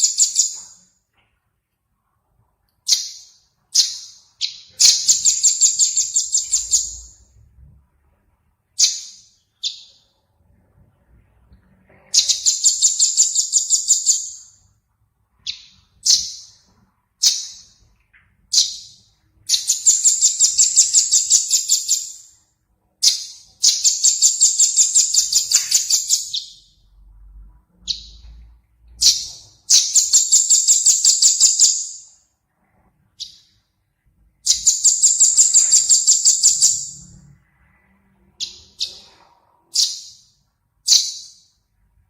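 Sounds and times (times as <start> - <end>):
songbird trilling: 2.9 - 7.2, 23.0 - 26.7, 34.5 - 37.1.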